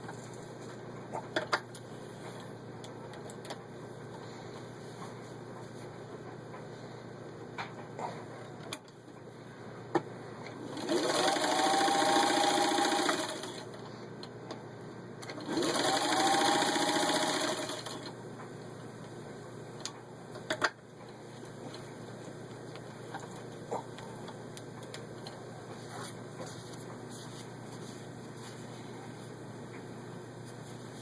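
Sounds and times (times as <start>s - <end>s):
sewing machine stitching: 10.6s - 13.7s, 15.3s - 18.1s.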